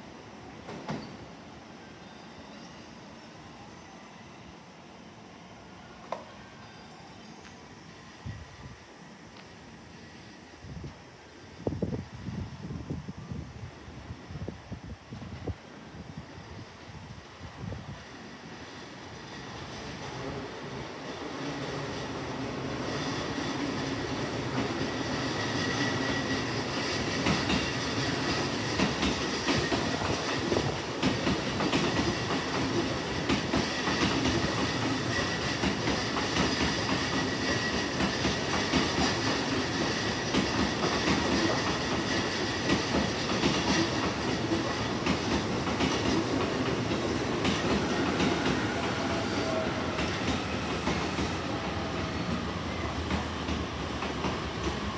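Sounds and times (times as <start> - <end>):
train whine: 0.0 - 54.9
train wheels clattering: 22.8 - 54.9.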